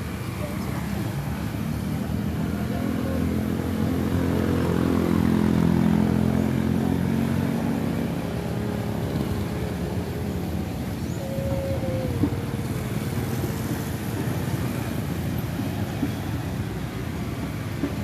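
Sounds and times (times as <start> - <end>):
vehicle engine passing by: 0.0 - 18.0.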